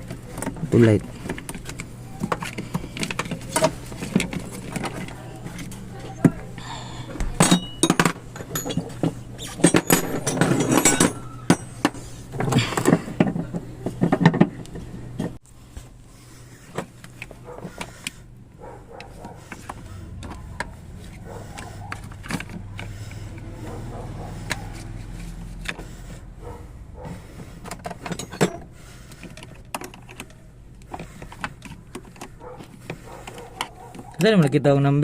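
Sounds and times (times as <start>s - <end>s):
steady low hum: 0.0s - 34.2s
metallic clinks and rattles: 7.4s - 12.1s, 27.7s - 30.5s.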